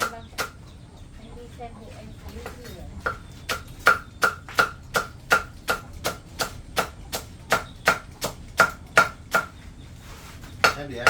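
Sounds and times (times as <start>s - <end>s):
knife chopping on wooden board: 0.0s - 0.6s, 2.4s - 9.6s, 10.4s - 11.0s.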